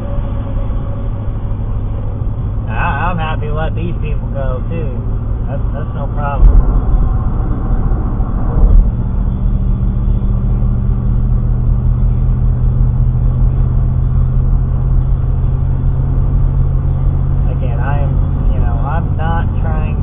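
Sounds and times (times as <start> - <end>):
engine and road noise drone: 0.0 - 20.0
low thump: 6.4 - 9.7.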